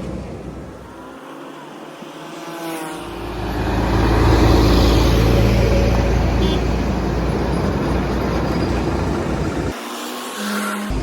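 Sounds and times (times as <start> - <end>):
road noise: 0.0 - 11.0
truck engine rumble: 3.0 - 9.7.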